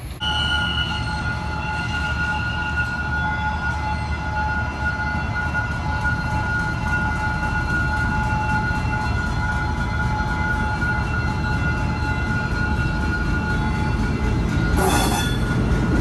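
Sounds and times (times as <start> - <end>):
locomotive engine rumbling: 4.6 - 16.0.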